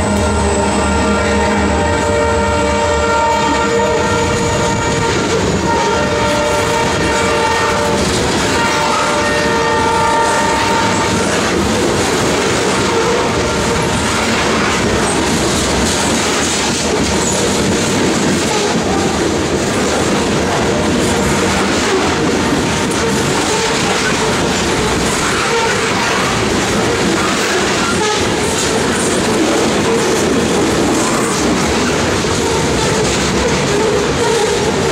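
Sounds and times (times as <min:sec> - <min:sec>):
locomotive air horn: 0:00.0 - 0:11.5, 0:12.6 - 0:14.0, 0:23.0 - 0:24.4, 0:25.0 - 0:26.5, 0:27.2 - 0:29.0
train rumbling past: 0:00.0 - 0:34.9
wheels clacking over rail joints: 0:04.1 - 0:34.9.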